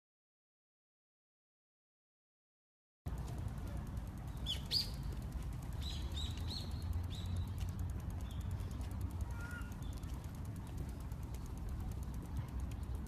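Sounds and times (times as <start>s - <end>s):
small birds chirping: 3.1s - 13.0s
steady low rumble: 3.1s - 13.0s.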